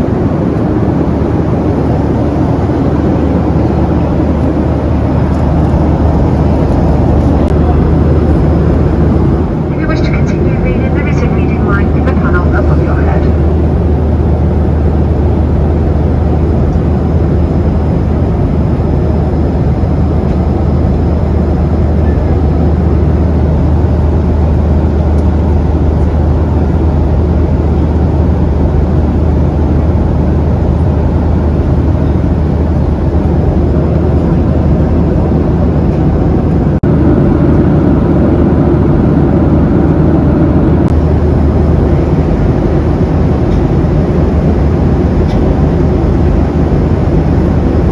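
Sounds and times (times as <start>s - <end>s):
aircraft cabin engine drone: 0.0s - 47.9s.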